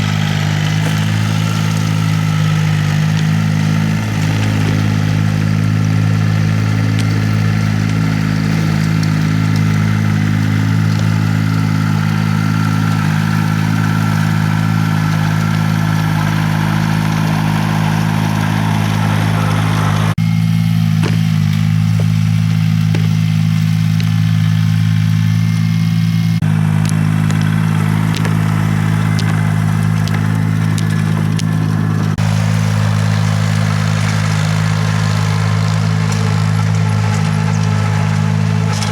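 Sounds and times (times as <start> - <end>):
tilling machine engine running: 0.0 - 38.9.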